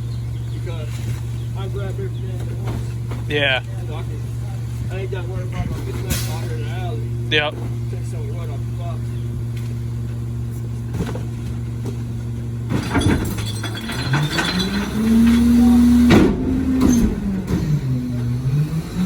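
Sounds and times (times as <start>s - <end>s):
truck engine idling and revving: 0.0s - 19.0s
knocks and rattles: 12.7s - 17.8s.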